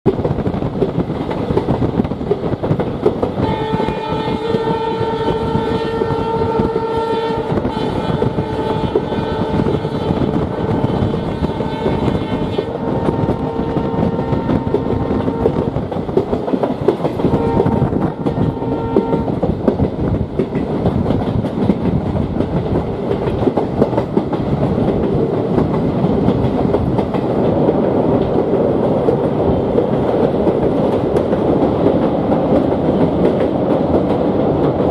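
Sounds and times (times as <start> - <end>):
train rumbling on rails: 0.0 - 34.9
train horn blasts: 3.4 - 15.6, 17.3 - 19.4.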